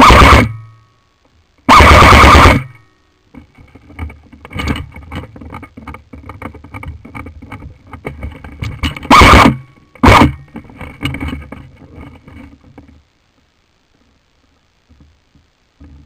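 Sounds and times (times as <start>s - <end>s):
loud burst overloading microphone: 0.0s - 0.6s, 1.7s - 2.8s, 9.0s - 10.4s
rustling with clicks and knocks: 3.3s - 16.0s.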